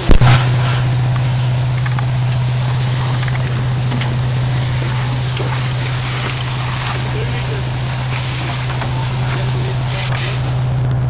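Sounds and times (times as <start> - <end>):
broad rushing noise: 0.0 - 11.0
fire engine motor running: 0.0 - 11.0.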